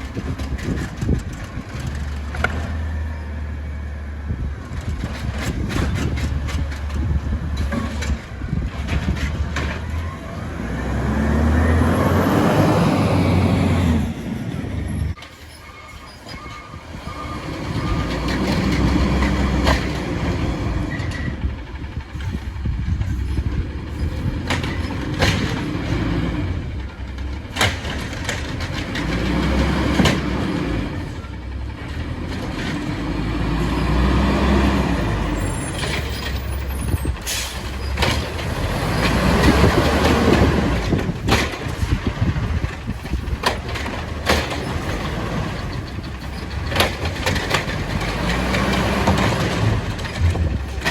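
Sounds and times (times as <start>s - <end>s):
diesel truck engine revving: 0.0s - 15.2s, 16.9s - 50.9s
sharp knocks and clanks: 4.7s - 10.0s, 17.7s - 21.3s, 22.2s - 30.8s, 37.1s - 50.9s.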